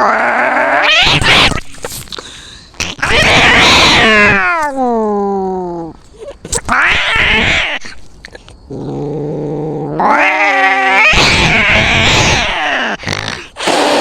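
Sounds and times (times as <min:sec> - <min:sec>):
cat yowling: 0:00.0 - 0:01.7, 0:02.9 - 0:05.0, 0:06.6 - 0:08.0, 0:10.0 - 0:13.0
cat screeching: 0:00.0 - 0:02.0, 0:02.8 - 0:05.0, 0:06.5 - 0:08.0, 0:10.0 - 0:14.0
cat hissing: 0:00.0 - 0:04.8, 0:06.5 - 0:08.0, 0:10.0 - 0:14.0.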